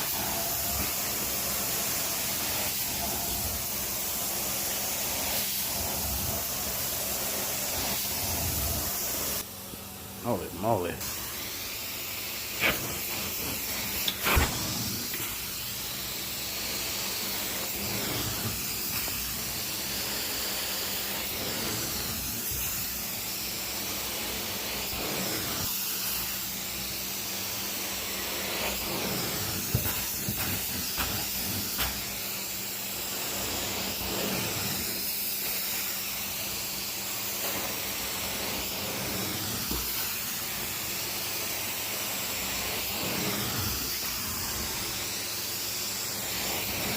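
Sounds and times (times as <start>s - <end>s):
carpet cleaning machine hissing: 0.0s - 46.9s.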